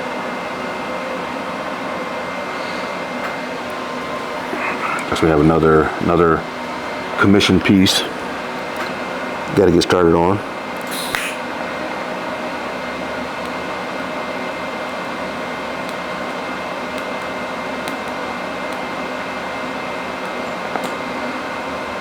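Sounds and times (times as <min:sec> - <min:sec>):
mechanical hum with hiss: 0:00.0 - 0:22.0.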